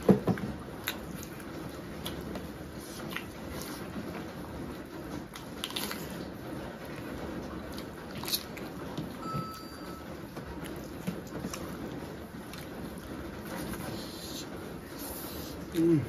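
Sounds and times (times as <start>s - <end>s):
person chewing food: 0.2s - 9.6s.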